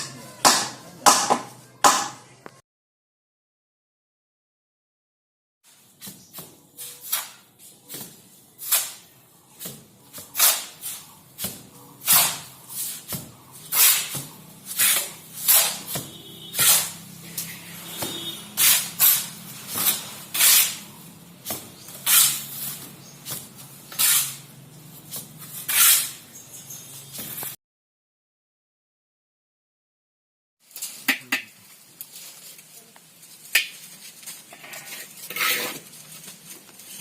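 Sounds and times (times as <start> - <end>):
short scraping strokes: 12.0 - 21.0, 25.4 - 26.2.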